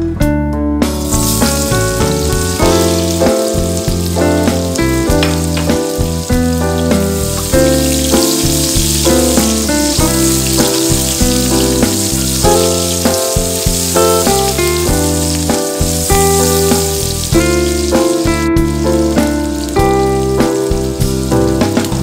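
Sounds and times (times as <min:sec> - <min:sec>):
instrumental music with beat: 0:00.0 - 0:22.0
onions sizzling in hot oil: 0:00.9 - 0:22.0.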